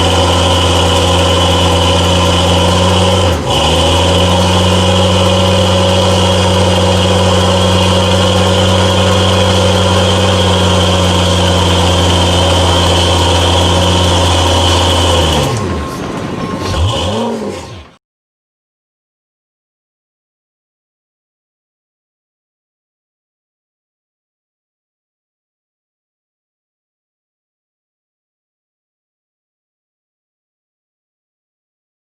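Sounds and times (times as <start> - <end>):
truck engine at high revs: 0.0 - 18.0.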